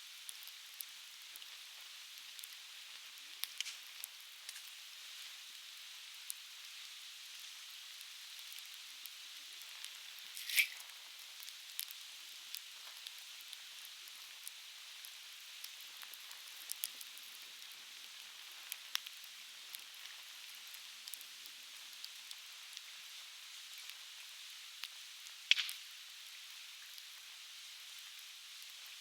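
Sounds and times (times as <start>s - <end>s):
firewood crackling: 3.4s - 4.7s, 9.6s - 11.9s, 24.8s - 26.0s
sharp pops of fire: 25.4s - 25.9s.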